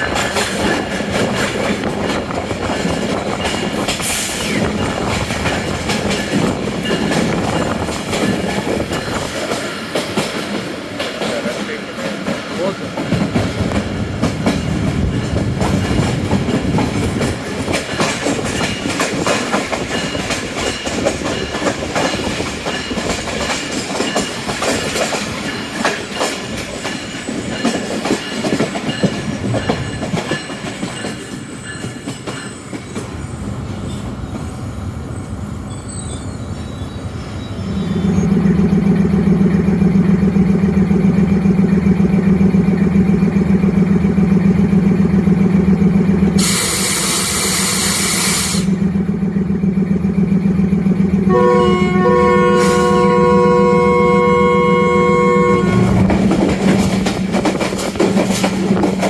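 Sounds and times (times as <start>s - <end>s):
train wheels clattering: 0.0s - 34.5s, 55.5s - 59.0s.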